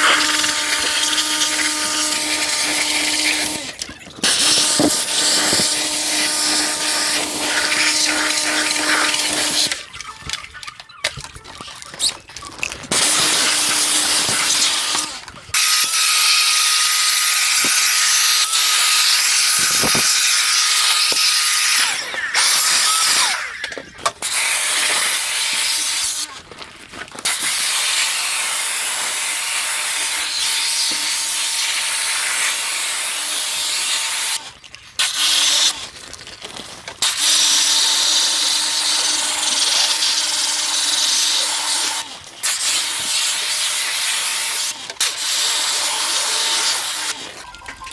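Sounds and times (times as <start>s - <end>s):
high-pressure spray hissing: 0.0s - 3.6s, 4.2s - 9.8s, 12.9s - 23.7s.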